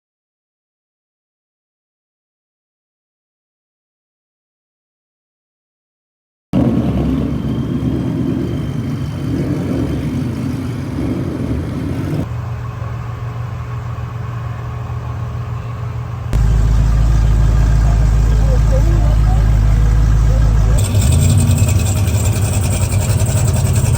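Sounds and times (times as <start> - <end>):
car engine idling: 6.6 - 23.9.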